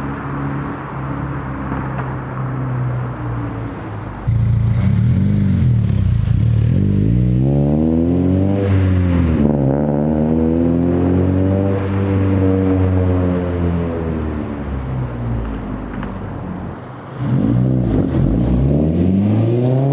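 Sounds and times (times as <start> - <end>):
car engine accelerating: 4.3 - 14.6, 16.8 - 19.9.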